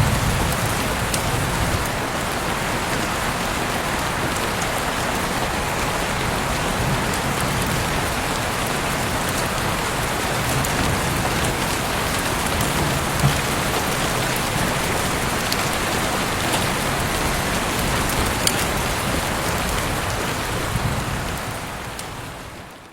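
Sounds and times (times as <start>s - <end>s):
heavy rain falling: 0.0s - 22.9s
sharp raindrop hits: 6.2s - 22.1s.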